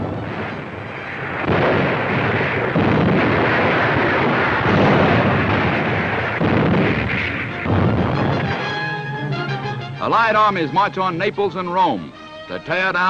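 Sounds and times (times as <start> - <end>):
heavy gunfire: 0.0 - 9.0
explosions: 0.0 - 9.1.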